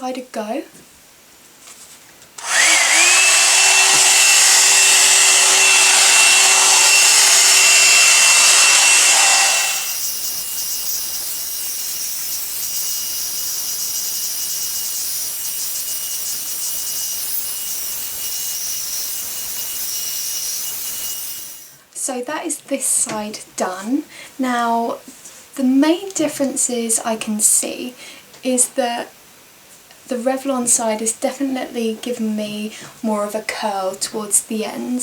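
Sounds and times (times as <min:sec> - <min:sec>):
hair dryer motor whining: 0:02.4 - 0:14.9, 0:15.8 - 0:21.7.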